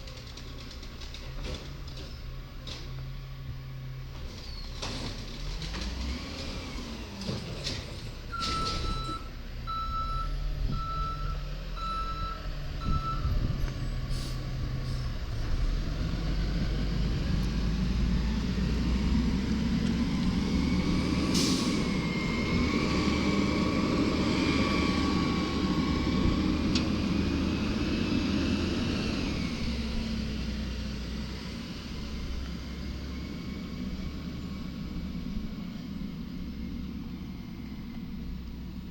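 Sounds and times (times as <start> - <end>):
diesel engine revving: 2.8 - 38.9
reversing alarm beeping: 8.3 - 13.4
air brake hissing: 14.1 - 15.1, 21.3 - 22.0.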